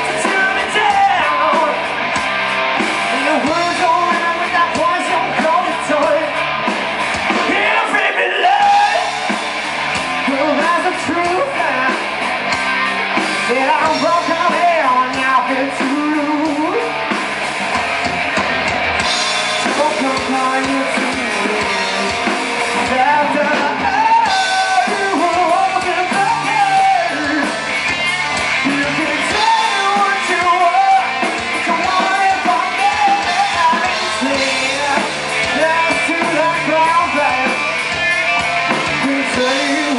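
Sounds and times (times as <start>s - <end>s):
person singing: 0.0s - 1.9s, 3.0s - 6.4s, 10.2s - 12.0s, 13.5s - 17.0s, 19.6s - 39.9s
live rock band playing: 0.0s - 39.9s.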